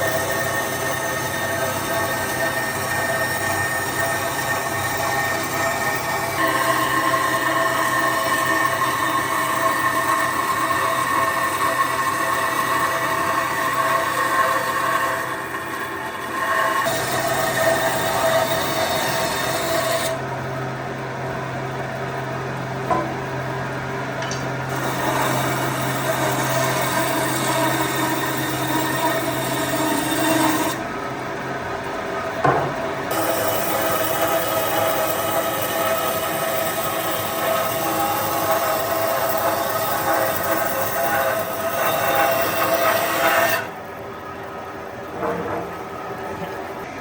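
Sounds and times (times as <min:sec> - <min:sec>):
power tool cutting wood: 0:00.0 - 0:20.2, 0:24.7 - 0:30.8, 0:33.1 - 0:43.7.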